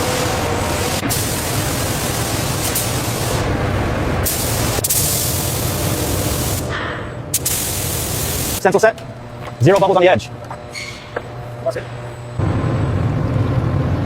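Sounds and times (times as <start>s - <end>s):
paint spray gun hissing: 0.0s - 3.5s, 4.2s - 6.7s, 7.4s - 8.6s.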